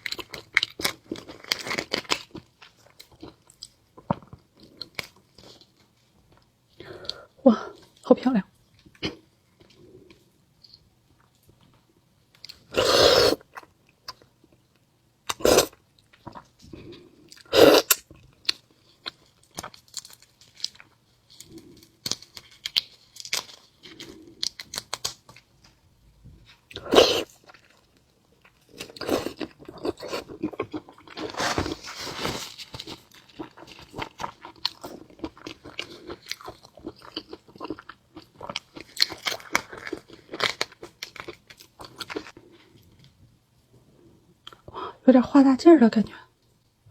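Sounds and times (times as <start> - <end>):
crunchy chewing: 15.3 - 25.8, 26.4 - 43.1.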